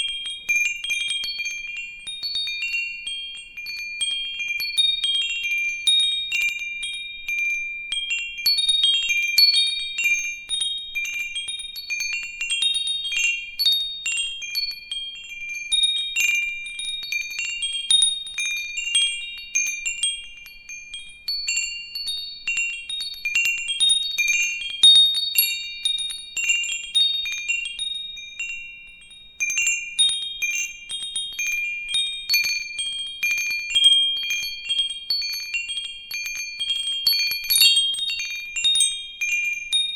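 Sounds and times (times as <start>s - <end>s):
metal wind chimes ringing: 0.0s - 39.9s.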